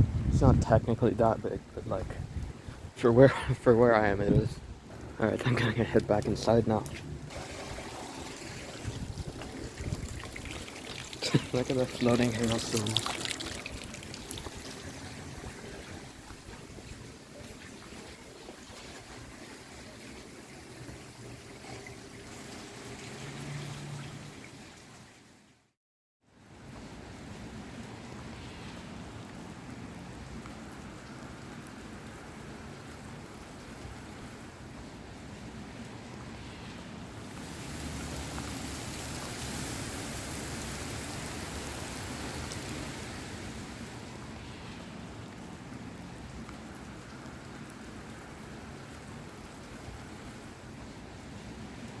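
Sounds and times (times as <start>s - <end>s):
heavy rain falling: 4.9s - 17.3s, 37.2s - 44.5s.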